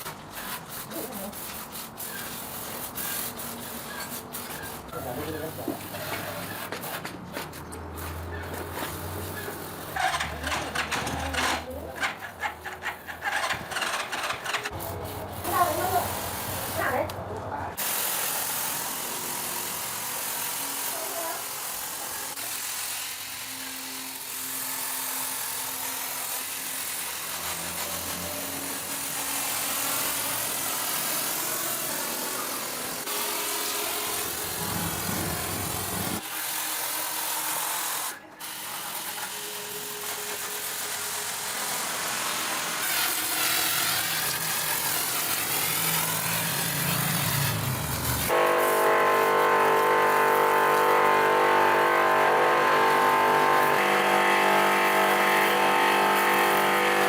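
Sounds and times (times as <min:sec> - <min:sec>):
machine and tool noise: 0:00.0 - 0:57.0
steady motor hum: 0:31.6 - 0:36.2, 0:42.9 - 0:57.0.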